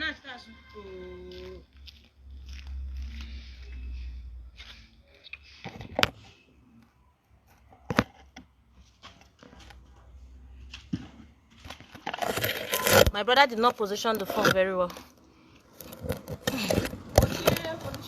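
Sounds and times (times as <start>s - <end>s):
handling knocks and rustling: 7.5s - 15.1s.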